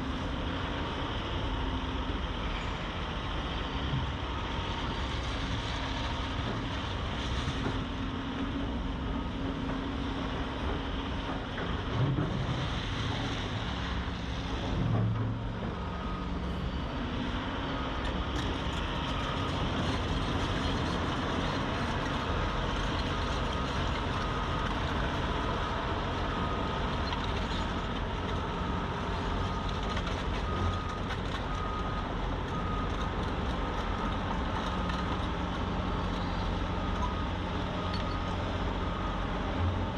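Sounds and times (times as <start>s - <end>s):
diesel engine rumble: 0.0s - 39.9s
reversing alarm beeping: 37.0s - 39.3s.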